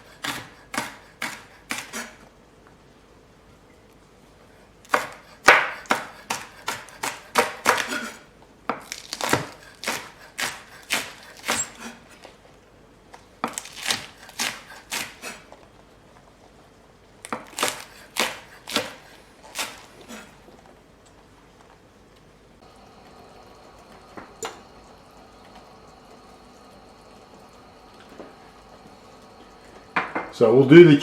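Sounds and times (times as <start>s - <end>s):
knife chopping on cutting board: 0.2s - 2.2s, 4.9s - 12.0s, 13.4s - 15.4s, 17.3s - 20.3s.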